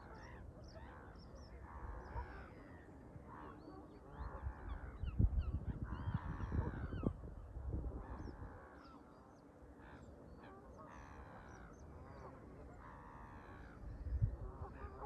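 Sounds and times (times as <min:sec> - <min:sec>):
wind buffeting microphone: 0:04.4 - 0:08.6, 0:13.8 - 0:14.9.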